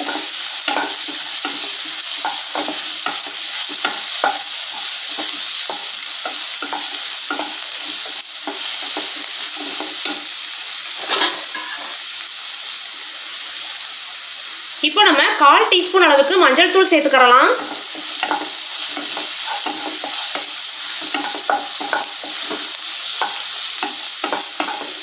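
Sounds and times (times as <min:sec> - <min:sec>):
spatula scraping a pan: 0:00.0 - 0:10.3, 0:17.6 - 0:25.0
food sizzling in oil: 0:00.0 - 0:25.0.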